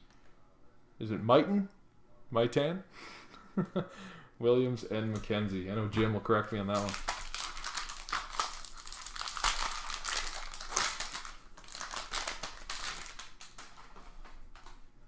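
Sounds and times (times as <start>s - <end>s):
foil wrapper crinkling and tearing: 6.7s - 14.8s.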